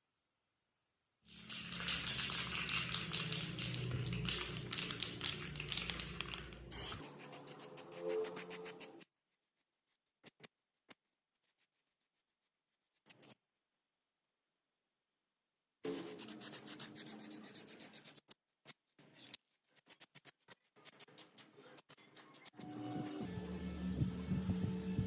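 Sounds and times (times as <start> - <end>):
rapid rattling hiss: 1.3 - 6.6.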